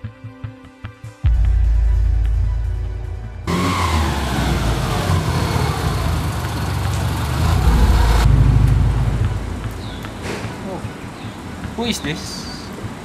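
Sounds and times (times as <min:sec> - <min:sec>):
car engine running: 0:03.5 - 0:10.1.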